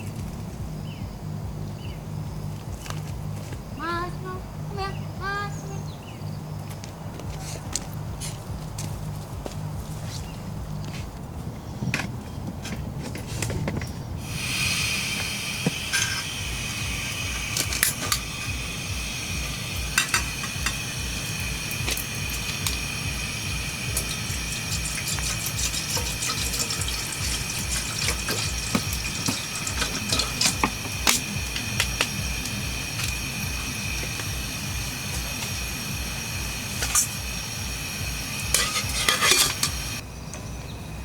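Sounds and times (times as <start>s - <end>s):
rain dripping: 14.2s - 40.0s
high-pitched whine: 14.2s - 41.0s.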